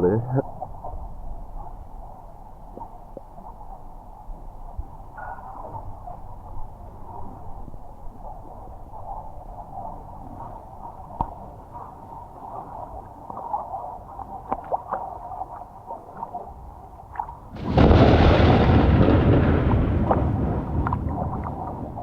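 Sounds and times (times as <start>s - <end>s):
faint ticks: 10.3s - 13.7s
thunderclap: 17.6s - 22.0s.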